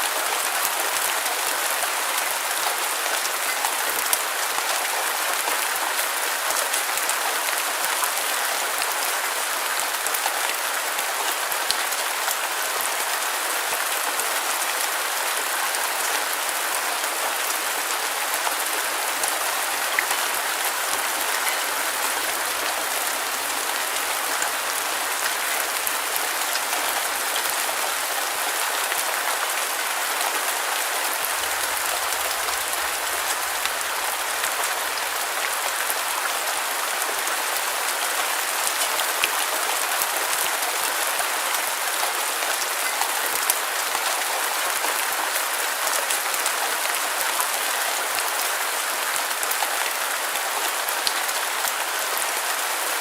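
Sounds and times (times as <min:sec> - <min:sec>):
dense rainfall hiss: 0:00.0 - 0:53.0.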